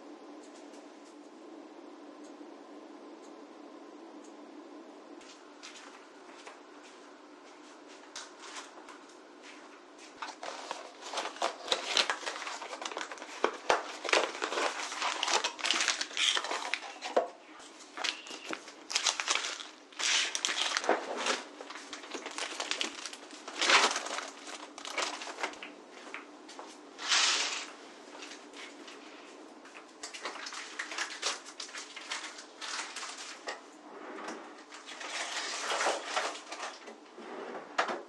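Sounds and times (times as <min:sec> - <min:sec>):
packaging rustling and crinkling: 0:10.2 - 0:26.3, 0:30.0 - 0:33.6, 0:34.6 - 0:36.9.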